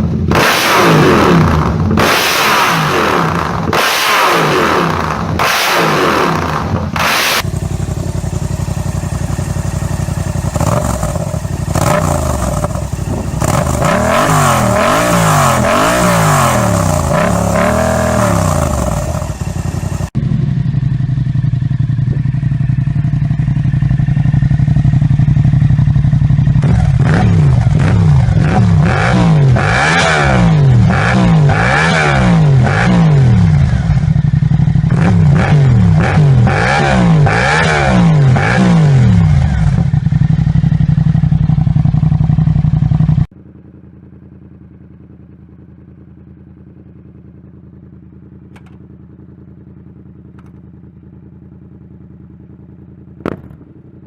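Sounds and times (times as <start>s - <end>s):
motorcycle engine revving: 0.0s - 54.0s
motorcycle engine idling: 6.3s - 29.6s, 33.2s - 36.5s, 38.9s - 54.0s.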